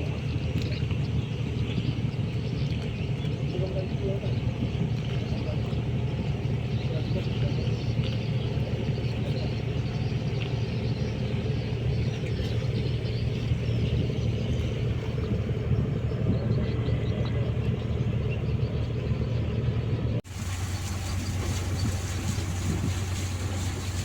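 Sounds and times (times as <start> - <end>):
boat engine humming: 0.0 - 24.0
water noise: 0.0 - 24.0
wind noise: 20.2 - 24.0.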